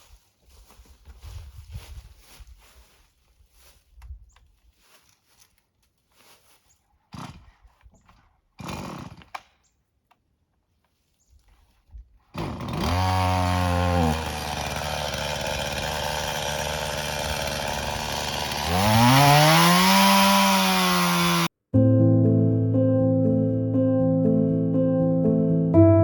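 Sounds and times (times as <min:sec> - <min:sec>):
chainsaw revving: 0:07.1 - 0:07.5, 0:08.6 - 0:09.5, 0:12.4 - 0:21.5
piano music: 0:21.7 - 0:26.0.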